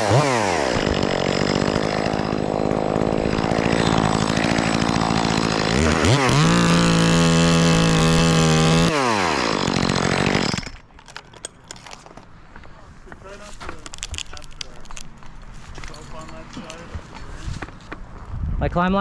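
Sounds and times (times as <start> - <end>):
chainsaw revving: 0.0 - 10.8.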